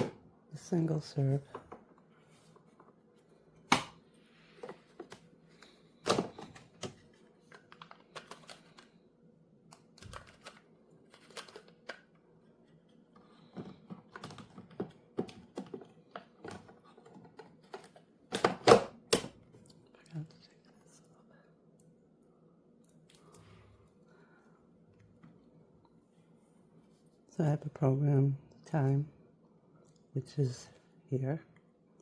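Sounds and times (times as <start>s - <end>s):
plastic parts clicking and knocking: 6.0s - 8.9s, 9.7s - 12.1s, 13.4s - 19.4s.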